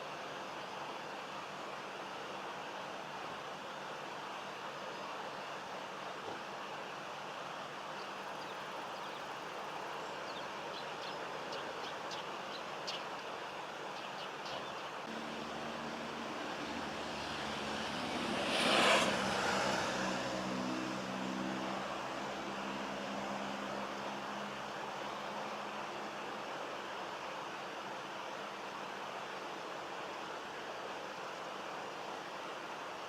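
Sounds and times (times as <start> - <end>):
vehicle passing: 15.1 - 24.5
car engine hum: 15.1 - 24.6.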